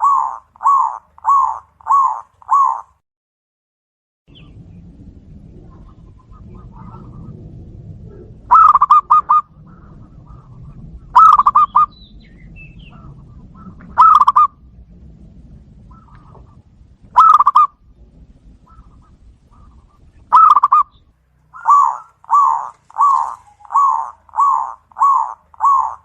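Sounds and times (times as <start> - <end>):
dove cooing: 0.0 - 3.0, 5.6 - 7.4, 8.0 - 12.0, 12.7 - 14.6, 15.9 - 17.8, 18.5 - 26.0.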